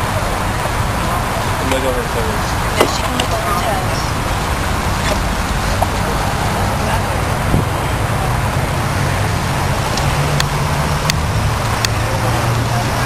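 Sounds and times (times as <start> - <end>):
roadside traffic: 0.0 - 13.0.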